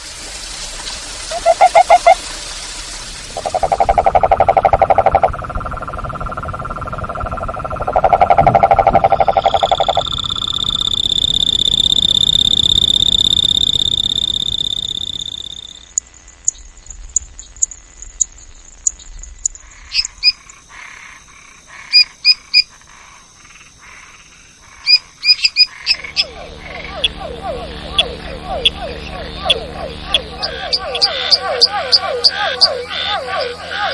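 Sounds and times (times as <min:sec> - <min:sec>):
frogs pulsed trill: 0:01.3 - 0:02.2, 0:03.4 - 0:33.9
long high-pitched frog call: 0:01.3 - 0:02.2, 0:03.4 - 0:16.0, 0:19.6 - 0:33.9
high chirps and clicks: 0:03.4 - 0:15.8, 0:24.9 - 0:33.0.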